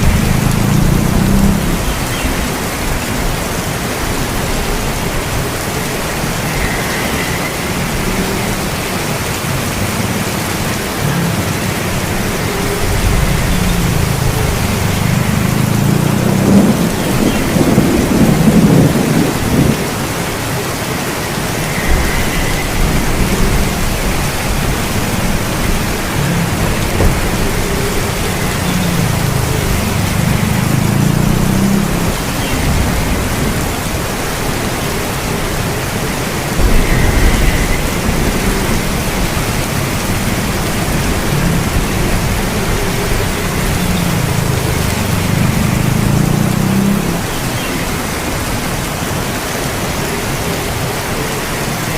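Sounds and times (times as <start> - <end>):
thunder rumbling: 0.0 - 48.8
heavy rain: 0.0 - 51.9.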